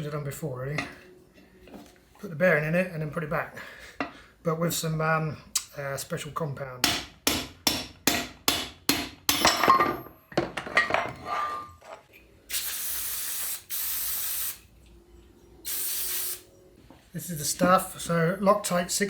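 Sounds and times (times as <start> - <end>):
aerosol spray can hissing: 12.5 - 14.6, 15.7 - 16.5.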